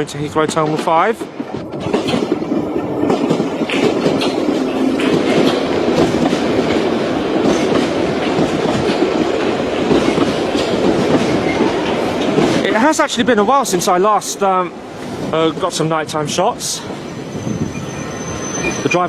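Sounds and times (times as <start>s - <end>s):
wheels clicking over rail joints: 0.0s - 13.8s
underground trains rumbling: 0.0s - 19.0s.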